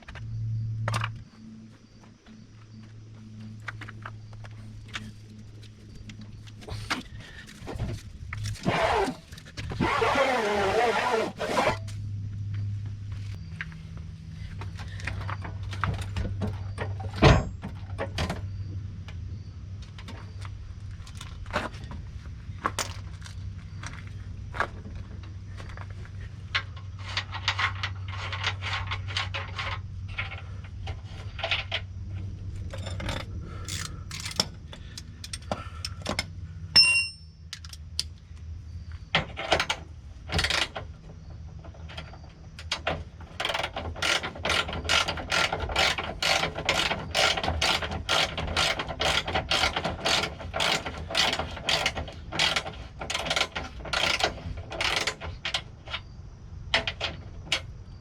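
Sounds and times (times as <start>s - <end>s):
sharp metallic clang: 36.8s - 37.4s
ratchet clicking: 43.4s - 55.6s.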